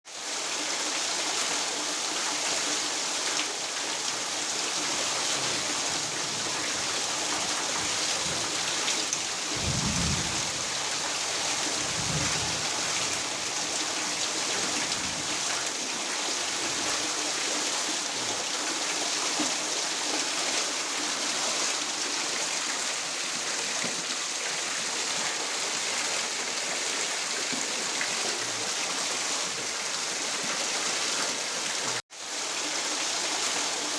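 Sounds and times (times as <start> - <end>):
steady rain hiss: 0.1 - 33.9
low rumble: 9.5 - 10.9.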